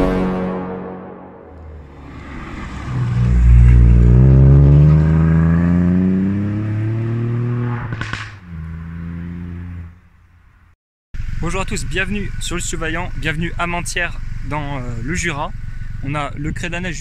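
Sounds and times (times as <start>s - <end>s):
car engine revving: 1.5s - 10.5s
exhaust crackling: 1.5s - 17.0s.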